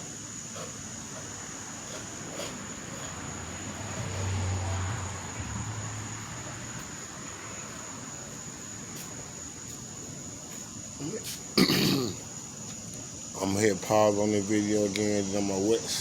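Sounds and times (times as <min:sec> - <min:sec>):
passing vehicle engine hum: 0:02.0 - 0:08.3.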